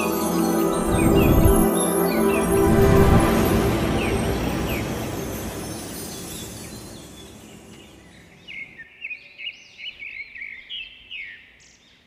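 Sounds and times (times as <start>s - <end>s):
rushing sound: 0.0s - 7.9s.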